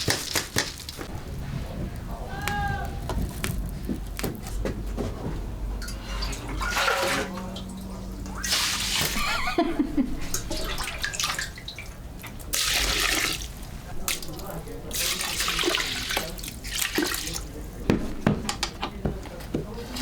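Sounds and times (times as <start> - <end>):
water splashing and pouring: 8.4 - 9.3, 10.3 - 17.5.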